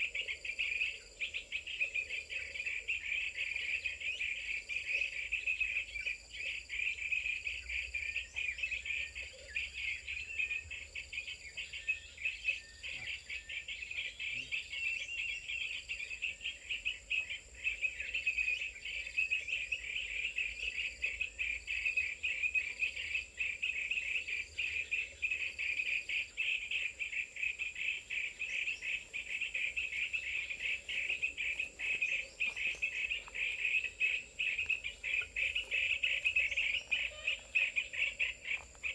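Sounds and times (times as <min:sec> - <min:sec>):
crickets chirring: 0:00.0 - 0:38.9.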